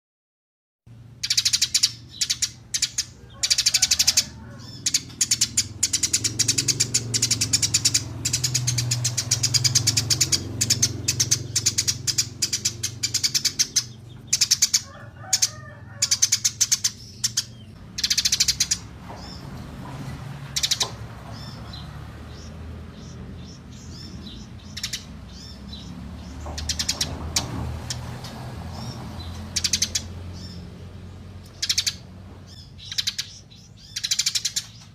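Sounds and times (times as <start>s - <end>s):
songbirds chirping and trilling: 0.9s - 34.9s.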